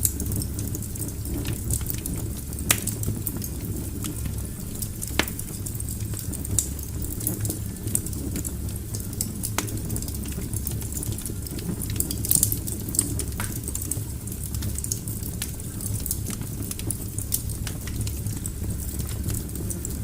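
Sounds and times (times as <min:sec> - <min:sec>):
fire flames rumbling: 0:00.0 - 0:20.0
logs crackling and popping: 0:00.0 - 0:20.0.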